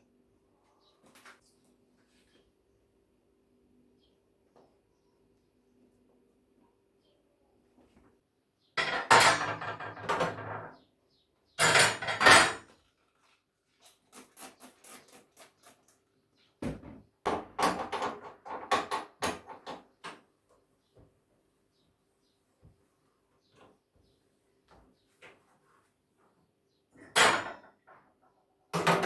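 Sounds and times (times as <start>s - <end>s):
dishes clattering: 8.8s - 10.7s, 11.6s - 12.7s, 27.0s - 27.8s.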